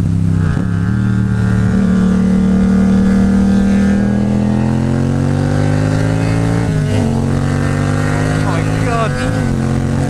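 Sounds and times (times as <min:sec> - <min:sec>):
motorcycle engine revving up: 0:00.0 - 0:10.0.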